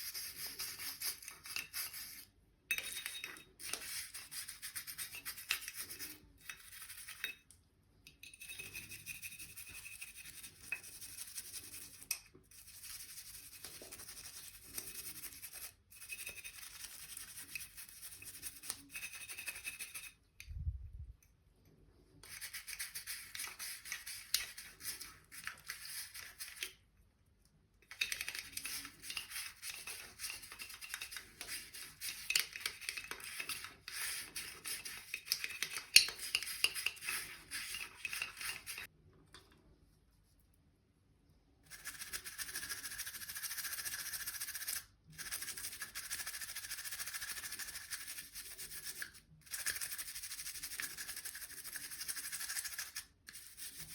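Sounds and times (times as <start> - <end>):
bristle brush scrubbing: 0.0 - 2.3, 8.5 - 20.2, 22.2 - 26.6, 28.0 - 38.9.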